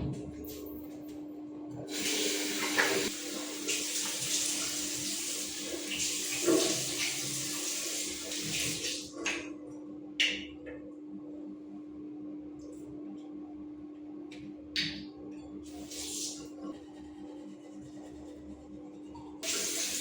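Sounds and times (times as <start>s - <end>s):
tap water running into sink: 1.9s - 9.5s, 15.7s - 16.4s, 19.4s - 20.0s.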